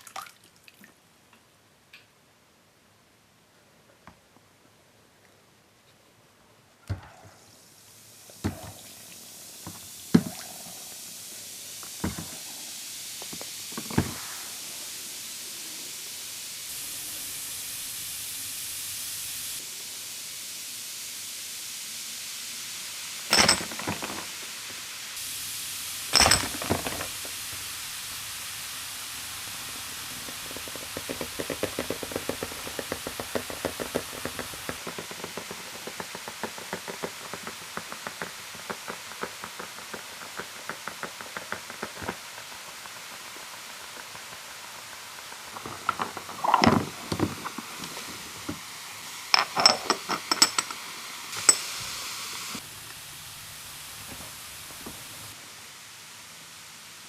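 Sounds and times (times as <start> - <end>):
bath ball fizzing in water: 7.0 - 49.7.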